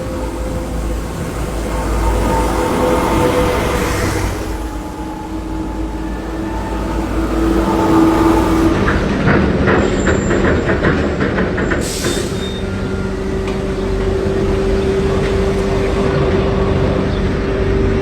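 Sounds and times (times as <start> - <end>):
machine humming: 0.0 - 10.0.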